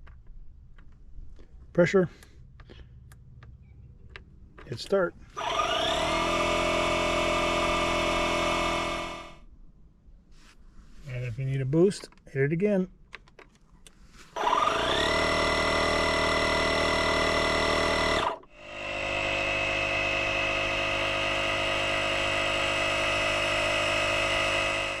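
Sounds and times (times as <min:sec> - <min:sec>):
air compressor motor whining: 0:04.7 - 0:09.4, 0:14.3 - 0:25.0.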